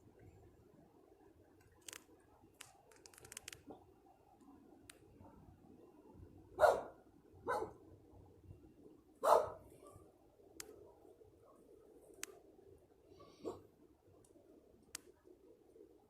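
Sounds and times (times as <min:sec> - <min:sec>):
faint clicks: 0:01.6 - 0:03.7, 0:10.6 - 0:10.8, 0:12.1 - 0:12.4, 0:14.2 - 0:15.3
dog barking: 0:06.6 - 0:07.8, 0:09.2 - 0:10.0, 0:13.4 - 0:13.7.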